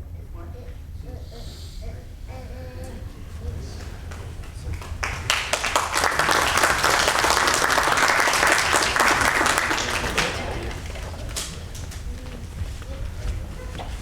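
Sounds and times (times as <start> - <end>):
audience applause: 3.8 - 13.4.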